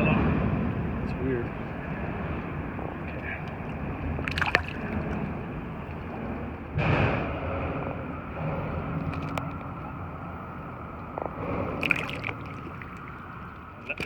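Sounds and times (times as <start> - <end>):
sudden loud rush: 0.0 - 14.0
wind and water rumbling: 0.0 - 14.0
faint clicks: 9.0 - 9.8.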